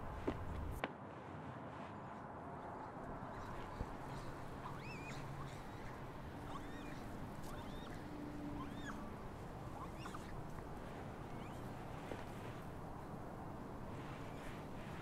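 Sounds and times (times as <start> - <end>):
small birds chirping: 3.2 - 13.1, 14.0 - 15.0.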